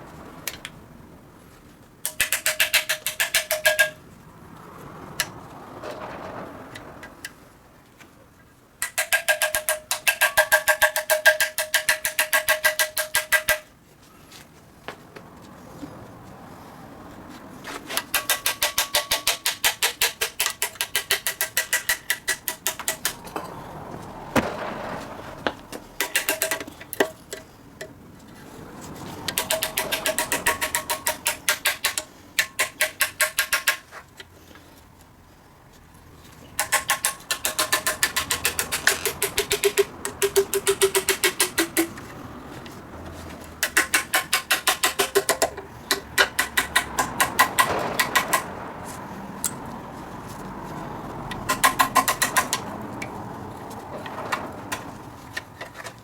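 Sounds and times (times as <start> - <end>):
ratchet wrench clicking: 2.0 - 4.0, 18.0 - 23.2, 29.3 - 33.9, 36.6 - 42.0, 43.6 - 48.5, 51.3 - 52.6.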